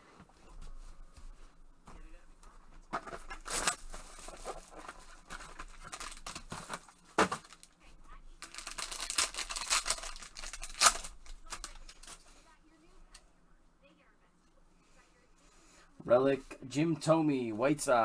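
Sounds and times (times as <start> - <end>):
wrapper crinkling and ripping: 3.0 - 7.8, 8.4 - 12.3.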